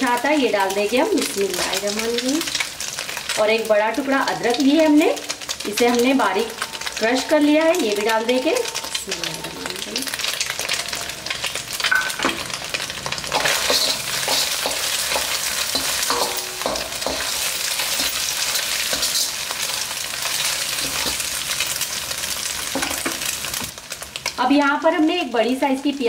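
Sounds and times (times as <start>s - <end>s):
food sizzling in hot oil: 0.0s - 26.0s
metal ladle scraping pan: 8.5s - 21.4s.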